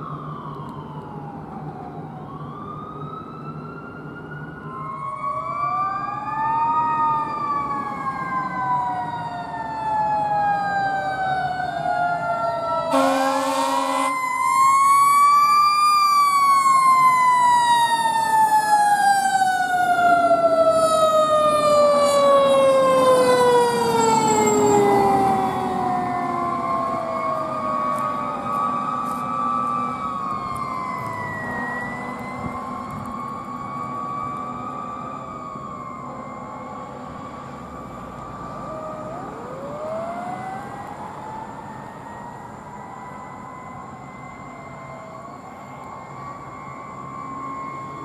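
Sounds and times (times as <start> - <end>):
fire truck sirens wailing: 0.0 - 48.0
air horn blast: 12.9 - 14.2.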